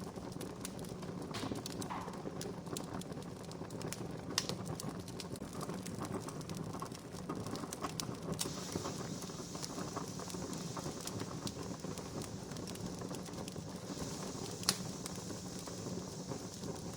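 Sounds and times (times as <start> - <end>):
campfire crackling: 0.0 - 16.9
steady hiss: 8.2 - 16.9.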